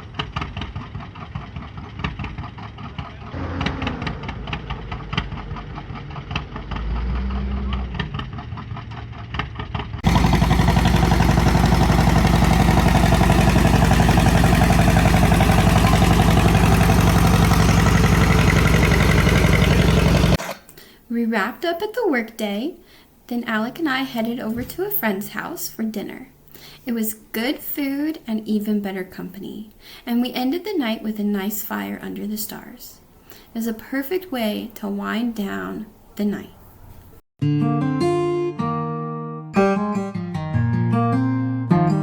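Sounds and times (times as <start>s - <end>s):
tractor engine exhaust firing: 0.0s - 20.6s
engine running hard at high revs: 1.0s - 8.6s, 10.0s - 20.4s.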